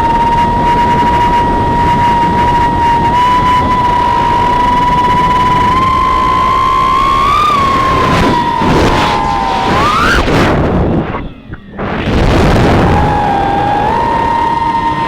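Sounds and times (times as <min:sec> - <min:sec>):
quadcopter motors whining: 0:00.0 - 0:15.0
rough rushing noise: 0:05.6 - 0:15.0.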